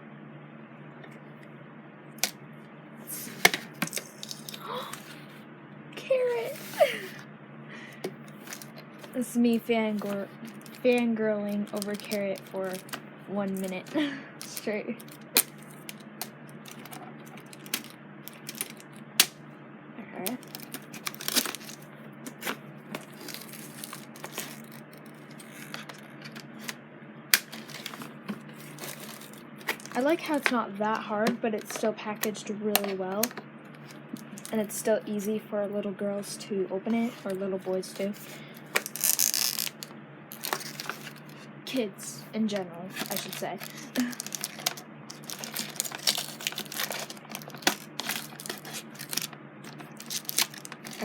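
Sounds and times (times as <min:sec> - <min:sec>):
toy packaging rustling: 0:03.3 - 0:05.2, 0:06.3 - 0:07.2, 0:08.0 - 0:19.4, 0:20.2 - 0:30.6, 0:31.2 - 0:34.8, 0:36.9 - 0:41.4, 0:42.9 - 0:51.0.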